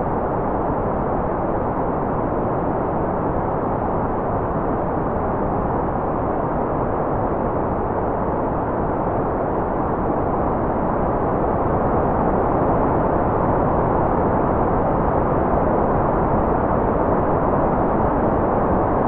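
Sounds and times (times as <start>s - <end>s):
deep muffled white noise: 0.0s - 19.0s.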